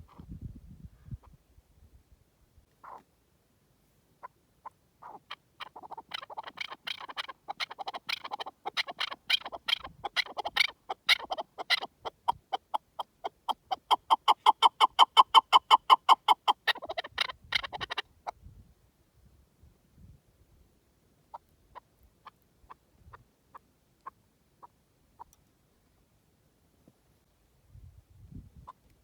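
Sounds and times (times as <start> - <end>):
partridge clucking call: 4.2 - 18.1.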